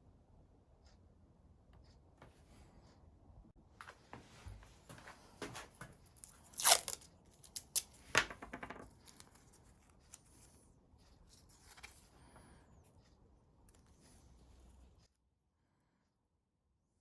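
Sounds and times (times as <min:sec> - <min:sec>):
faint handling noises: 0:03.8 - 0:15.1.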